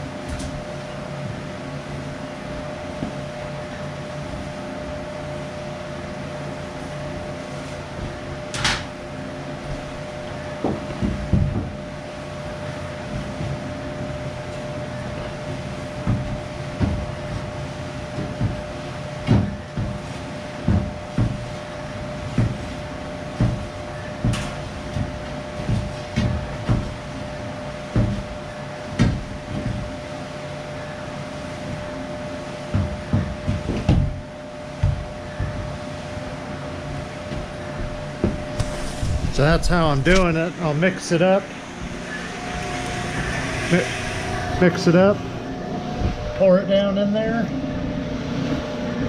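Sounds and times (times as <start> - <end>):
steady mechanical hum: 0.0 - 49.0
knocks and thumps from tools: 10.6 - 11.8, 16.0 - 17.5, 18.1 - 21.6, 23.4 - 27.0, 27.9 - 29.9, 32.7 - 35.8, 37.3 - 40.5.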